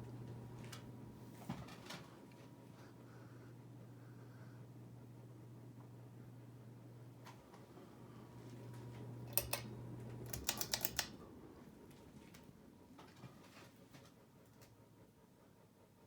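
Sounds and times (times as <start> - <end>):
ceiling fan motor humming: 0.0 - 16.0
fan switch clicks and rattles: 9.2 - 11.3.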